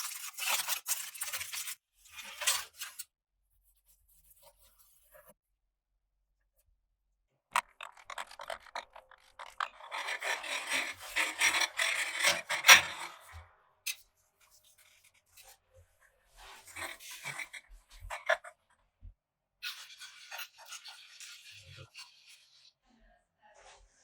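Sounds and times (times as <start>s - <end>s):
rough scraping and rubbing: 7.6s - 13.4s, 16.4s - 18.5s.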